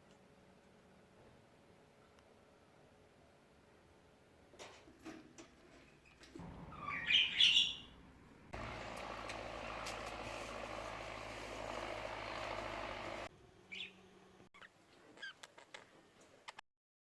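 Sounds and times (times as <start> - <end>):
budgerigar chirping: 6.6 - 8.0, 13.7 - 13.9.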